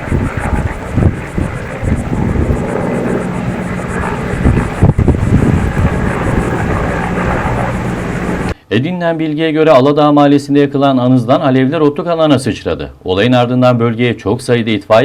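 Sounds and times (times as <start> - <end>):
engine running: 0.0 - 8.6
wind buffeting microphone: 0.0 - 8.6.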